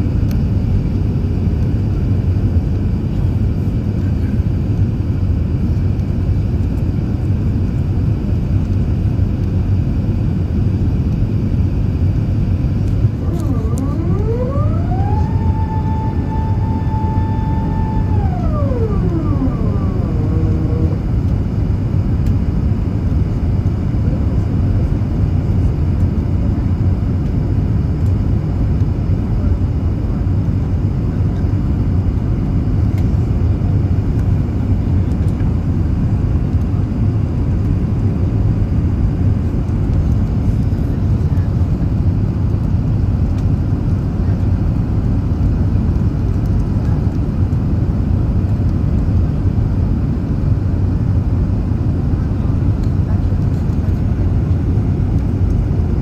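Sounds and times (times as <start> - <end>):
airliner engine roar: 0.0 - 56.0
whine gliding down in pitch: 12.8 - 22.3.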